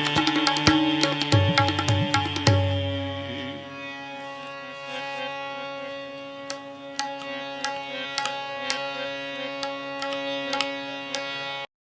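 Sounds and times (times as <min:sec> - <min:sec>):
tabla strokes: 0:00.0 - 0:03.5, 0:06.4 - 0:09.0, 0:09.6 - 0:11.4
harmonium chord: 0:00.0 - 0:11.7.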